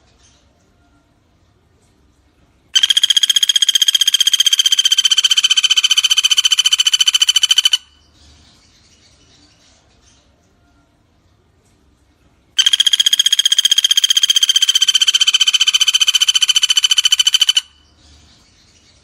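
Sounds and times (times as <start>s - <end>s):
woodpecker rattling trill: 2.8s - 8.0s, 12.6s - 17.9s.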